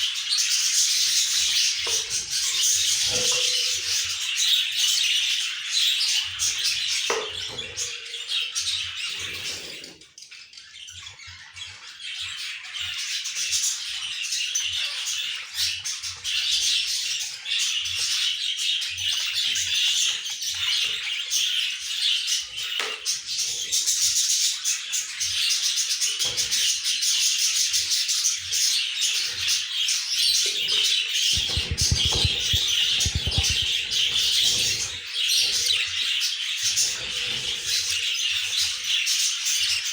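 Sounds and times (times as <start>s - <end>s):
budgerigars chirping: 31.3s - 35.8s
low thumps: 31.4s - 34.0s.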